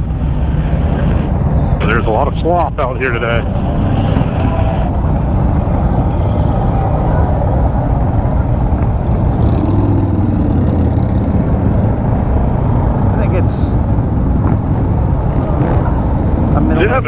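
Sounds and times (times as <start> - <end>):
wind rush on microphone: 0.0 - 17.0
motorcycle engine running: 3.4 - 17.0.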